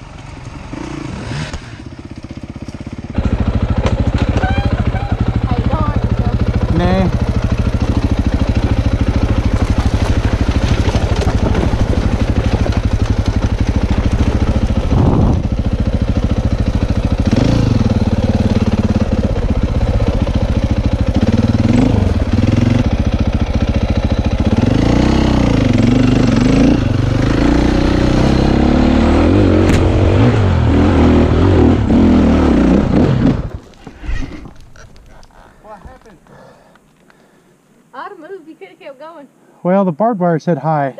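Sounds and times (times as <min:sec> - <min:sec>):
dirt bike engine revving: 0:00.6 - 0:34.8.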